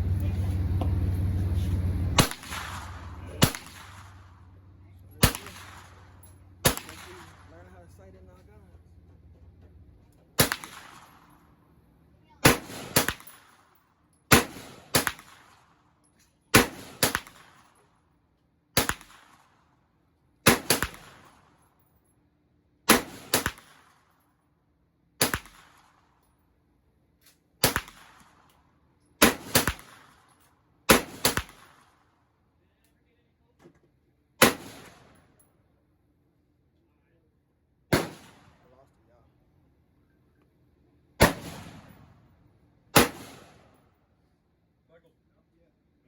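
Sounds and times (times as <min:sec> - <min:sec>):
handgun gunshots with echo: 0:05.2 - 0:07.5, 0:10.4 - 0:11.2, 0:12.4 - 0:13.6, 0:20.5 - 0:21.3, 0:29.2 - 0:30.1, 0:37.9 - 0:38.4, 0:43.0 - 0:43.6.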